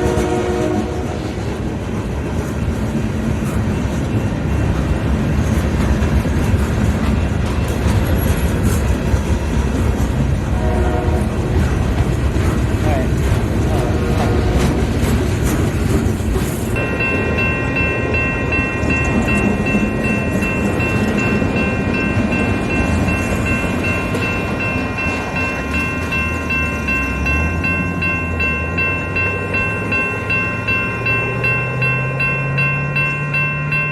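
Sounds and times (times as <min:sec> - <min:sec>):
train rumbling past: 0:00.0 - 0:33.9
pulsing multi-pitch ringing: 0:16.8 - 0:33.9.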